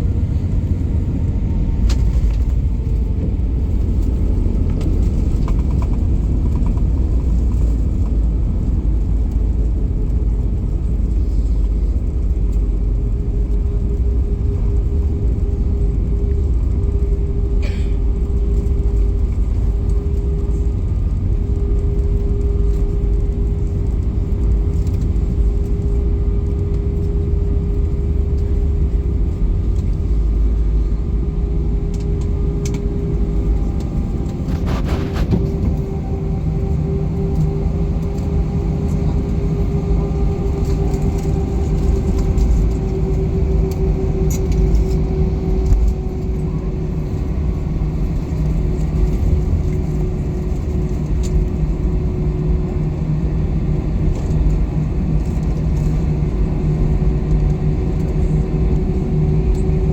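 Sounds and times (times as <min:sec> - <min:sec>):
jet engine cabin rumble: 0:00.0 - 0:59.9.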